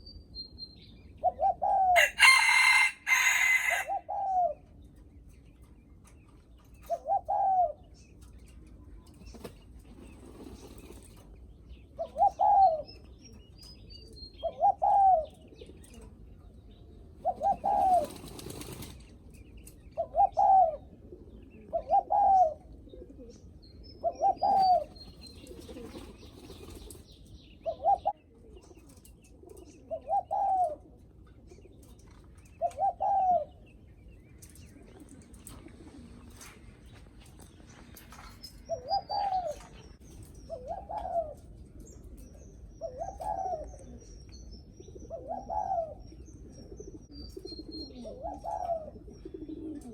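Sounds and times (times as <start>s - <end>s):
small birds chirping faintly: 0.0s - 49.9s
dove cooing: 1.2s - 4.7s, 6.8s - 8.0s, 11.9s - 16.2s, 17.0s - 19.0s, 19.9s - 27.0s, 27.6s - 33.7s, 34.6s - 37.0s, 38.2s - 44.2s, 44.8s - 49.9s.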